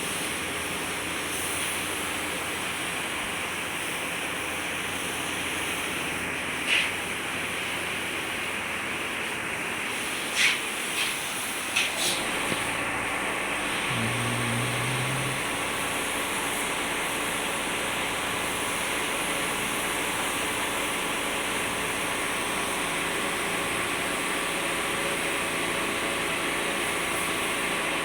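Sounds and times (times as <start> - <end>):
faint hum: 13.7 - 16.2.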